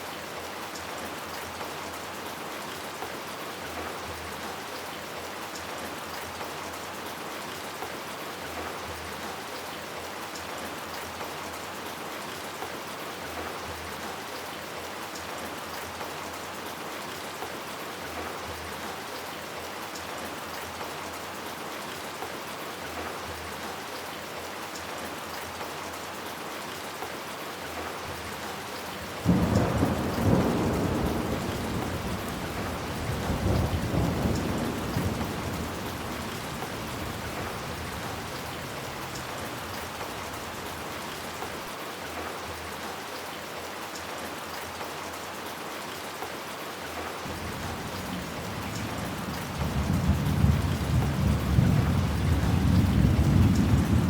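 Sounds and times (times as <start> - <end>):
steady rain falling: 0.0 - 54.0
thunderclap rumbling: 29.2 - 39.2.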